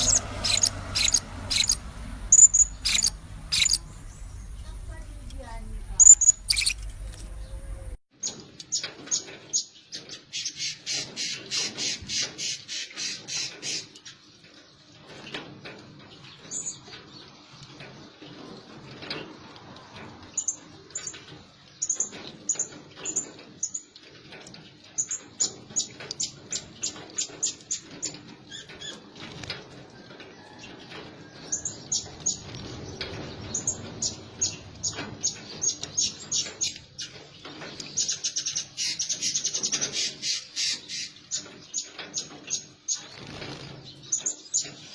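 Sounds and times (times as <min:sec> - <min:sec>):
parrots chirping: 0:00.0 - 0:04.3, 0:06.0 - 0:06.9.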